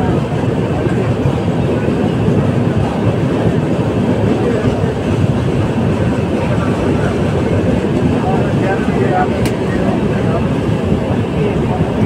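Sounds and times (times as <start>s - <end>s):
train wheels rolling on rails: 0.0s - 12.0s.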